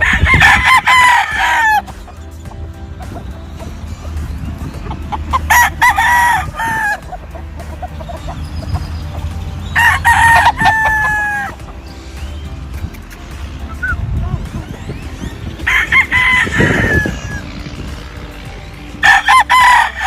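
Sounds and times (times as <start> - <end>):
roosters crowing: 0.0 - 12.6, 14.8 - 20.0.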